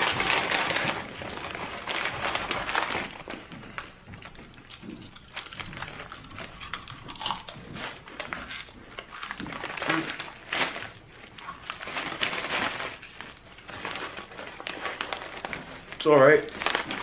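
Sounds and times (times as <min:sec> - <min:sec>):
bag crinkling: 0:00.0 - 0:17.0
chips crunching: 0:04.2 - 0:17.0.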